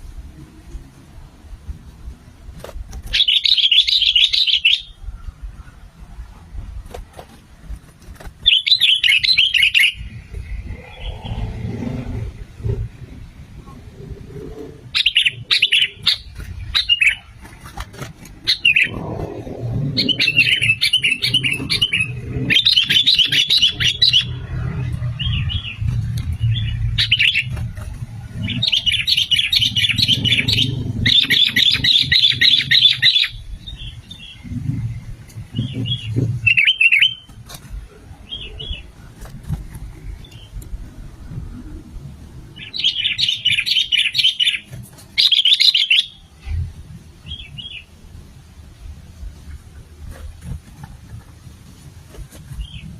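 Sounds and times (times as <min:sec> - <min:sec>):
bird chattering calls: 0:03.1 - 0:05.0, 0:08.4 - 0:11.5, 0:14.9 - 0:17.8, 0:18.4 - 0:25.8, 0:26.4 - 0:27.6, 0:28.4 - 0:34.5
low rumble: 0:10.0 - 0:36.5.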